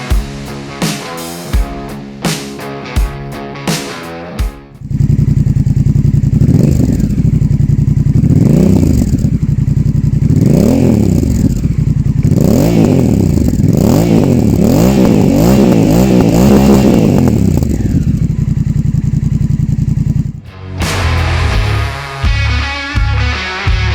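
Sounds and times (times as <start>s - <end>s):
motorcycle engine idling and revving: 4.8s - 21.9s.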